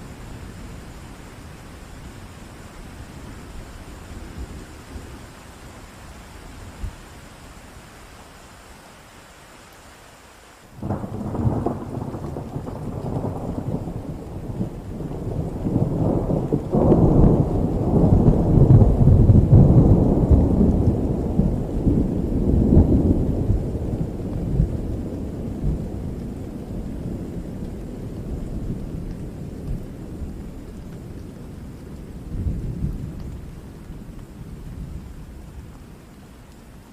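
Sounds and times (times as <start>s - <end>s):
steady rain: 0.0s - 36.9s
thunder rumbling: 10.7s - 36.2s.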